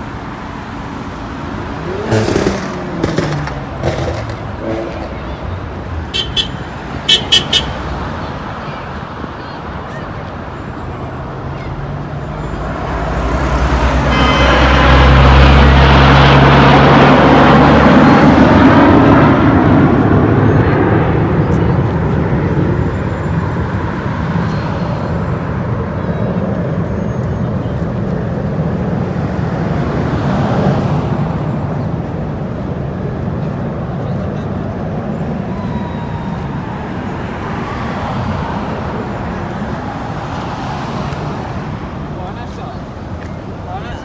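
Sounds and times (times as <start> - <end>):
aircraft engine roar: 13.8 - 38.1.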